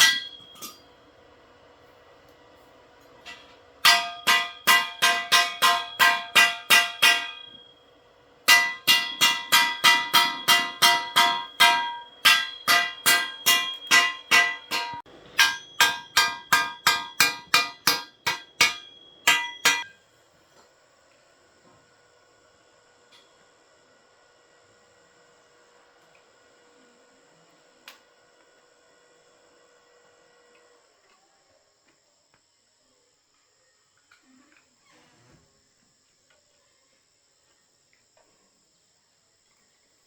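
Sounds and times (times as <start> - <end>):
metal struck ringing: 0.0 - 0.8, 3.3 - 7.7, 8.5 - 19.9.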